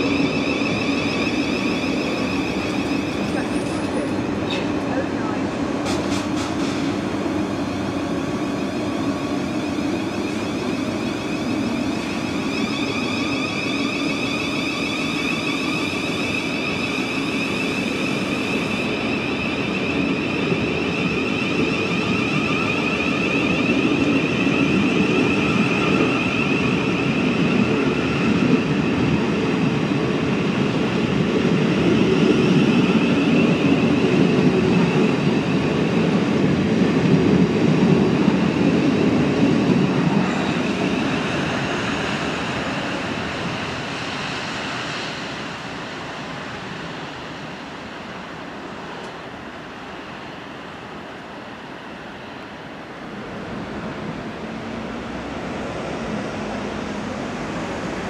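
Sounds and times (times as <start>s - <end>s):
train wheels rumbling: 0.0s - 48.0s
electric train whine: 0.0s - 58.0s.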